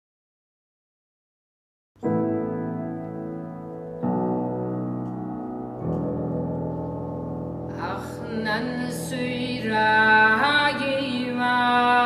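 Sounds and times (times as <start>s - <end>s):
keyboard sustained chords: 2.1s - 11.7s.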